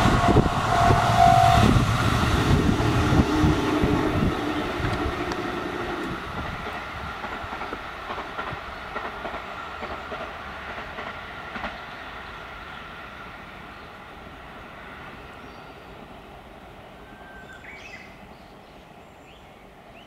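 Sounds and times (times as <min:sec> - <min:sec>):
electric train running on rails: 0:00.0 - 0:20.0
wheels clacking over rail joints: 0:01.6 - 0:12.0.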